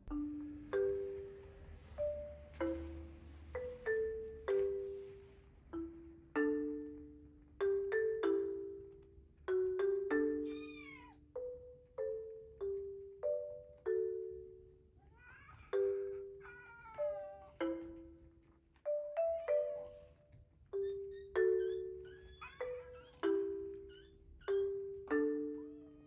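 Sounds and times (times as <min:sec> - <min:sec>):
marimba-like background music: 0:00.0 - 0:15.0, 0:15.6 - 0:26.0
cat meowing: 0:10.5 - 0:11.2.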